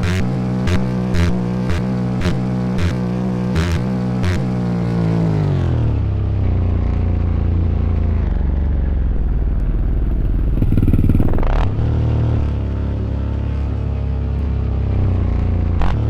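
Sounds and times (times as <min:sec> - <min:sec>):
dirt bike engine: 0:00.0 - 0:16.0.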